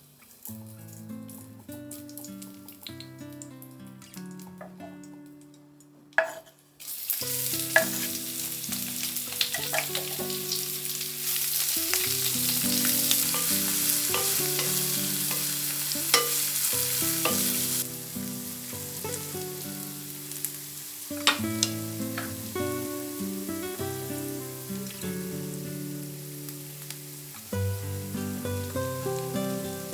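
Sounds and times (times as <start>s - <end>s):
food sizzling in a hot pan: 0.0s - 5.3s, 6.2s - 29.9s
utensil clinking against pan: 9.4s - 10.3s, 13.1s - 17.8s.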